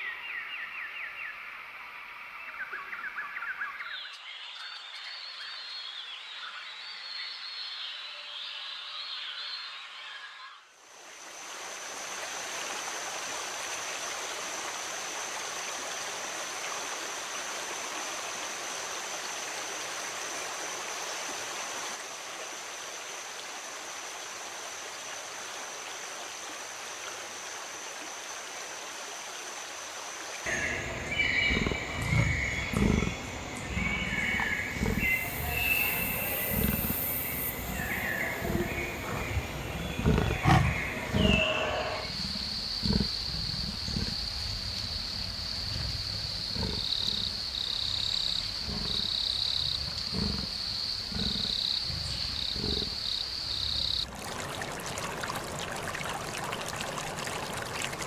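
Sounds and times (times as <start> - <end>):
steady rushing hiss: 29.6 - 54.0
rough animal calls: 30.5 - 54.0.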